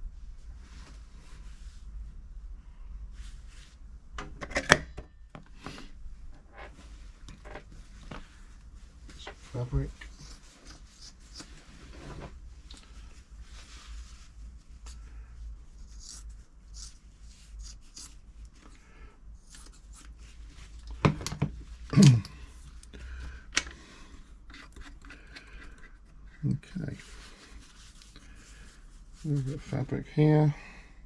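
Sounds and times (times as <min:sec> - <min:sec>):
fabric rustling: 0:06.7 - 0:15.0.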